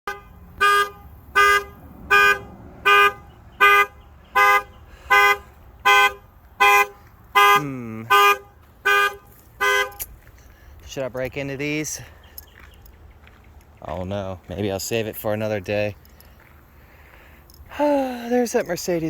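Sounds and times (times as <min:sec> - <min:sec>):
car alarm two-tone honks: 0:00.0 - 0:10.1.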